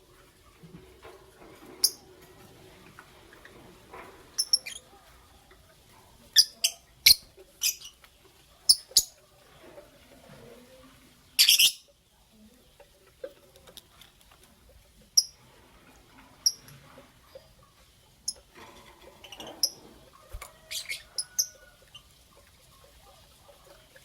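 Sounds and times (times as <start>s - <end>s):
lovebirds chirping: 4.4s - 5.5s, 6.2s - 9.2s, 11.3s - 12.0s, 19.1s - 24.0s.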